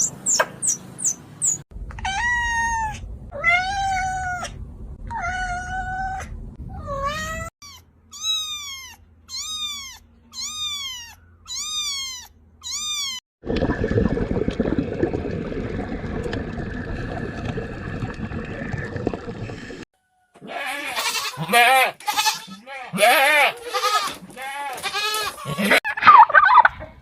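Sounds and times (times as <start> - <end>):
cat meowing: 6.8 - 13.2.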